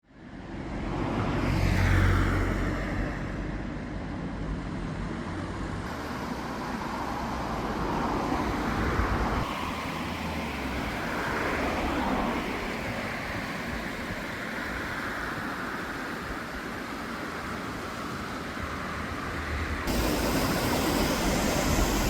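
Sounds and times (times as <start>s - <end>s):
heavy machinery engine running: 19.9s - 22.0s.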